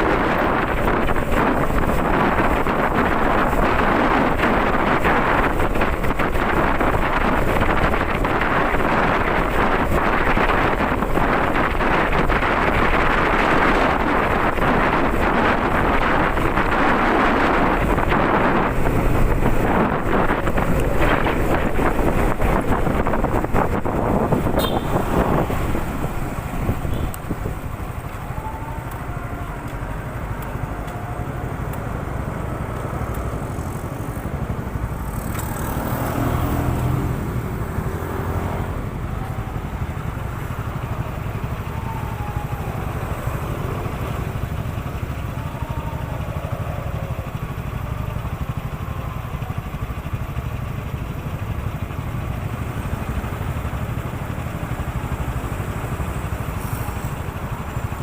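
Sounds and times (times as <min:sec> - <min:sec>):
motorcycle engine running: 0:00.0 - 0:28.2, 0:43.3 - 0:58.0
wind on microphone: 0:00.0 - 0:50.4.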